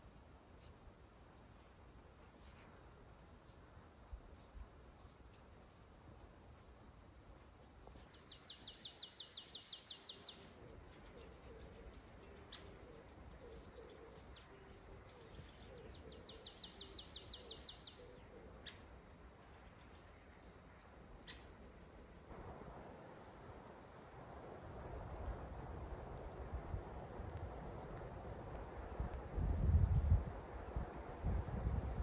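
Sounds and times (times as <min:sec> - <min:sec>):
songbird singing trills: 0:03.4 - 0:05.9, 0:08.0 - 0:21.5
bird chirps: 0:03.6 - 0:05.9, 0:08.0 - 0:21.5.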